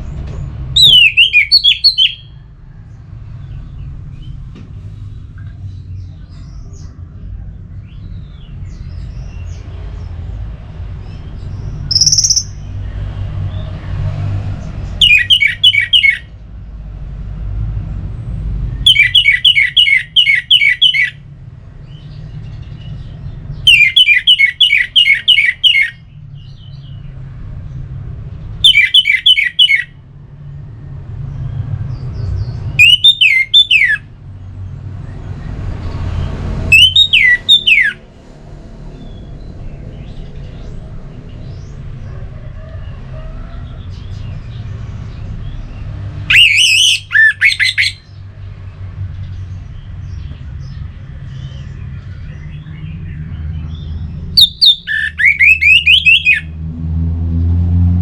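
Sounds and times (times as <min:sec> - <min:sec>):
songbird calling: 0:00.8 - 0:02.4, 0:11.8 - 0:12.8, 0:15.0 - 0:16.3, 0:18.8 - 0:21.2, 0:23.6 - 0:26.9, 0:28.6 - 0:30.0, 0:32.8 - 0:34.1, 0:36.7 - 0:38.0, 0:46.2 - 0:48.3, 0:50.1 - 0:56.5
low rumble: 0:38.0 - 0:42.3.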